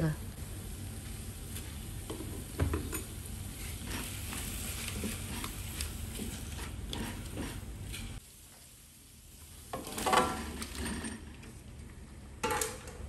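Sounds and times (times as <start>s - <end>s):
paste sizzling in a wok: 0.4s - 11.0s
spatula scraping a wok: 3.4s - 8.2s.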